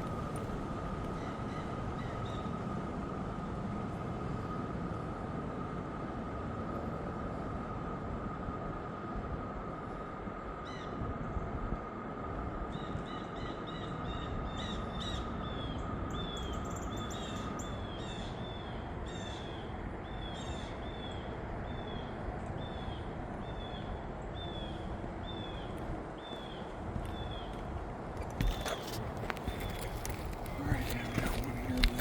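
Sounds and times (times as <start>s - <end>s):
outdoor background noise: 0.0s - 32.0s
bird calling: 12.8s - 32.0s.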